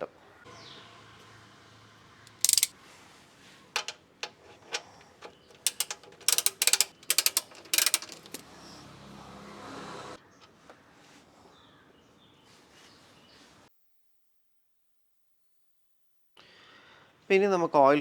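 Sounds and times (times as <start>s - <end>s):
ratchet wrench clicking: 2.3s - 2.8s, 3.8s - 8.5s.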